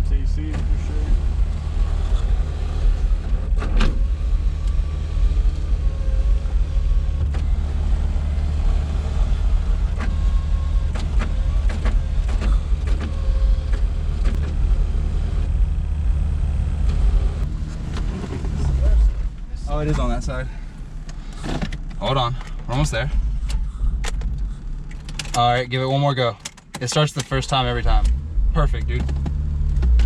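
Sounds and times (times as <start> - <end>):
car engine drone from cabin: 0.0 - 26.2.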